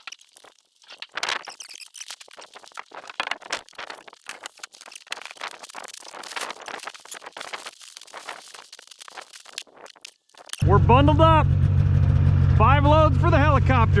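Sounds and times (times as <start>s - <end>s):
crunches and clicks: 0.0s - 10.6s.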